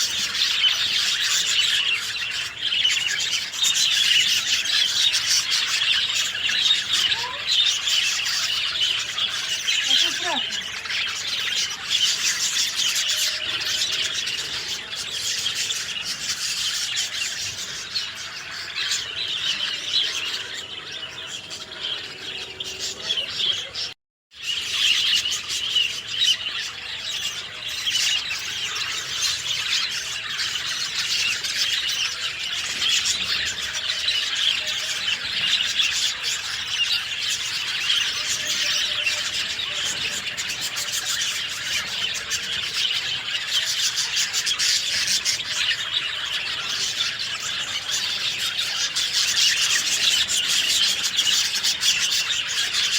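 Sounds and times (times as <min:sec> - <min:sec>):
songbirds chirping and singing: 0:00.0 - 0:52.9.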